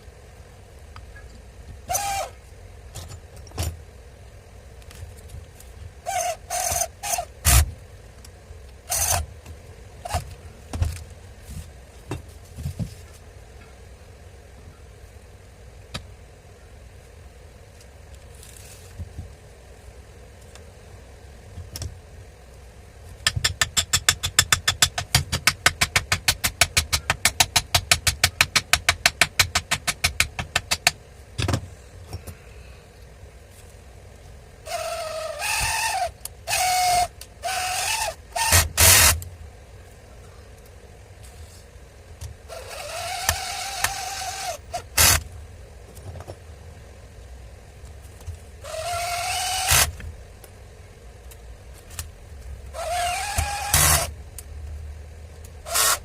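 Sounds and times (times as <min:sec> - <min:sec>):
power tool motor whirring: 0:34.7 - 0:39.2, 0:48.6 - 0:49.9, 0:52.8 - 0:54.1, 0:55.7 - 0:56.0.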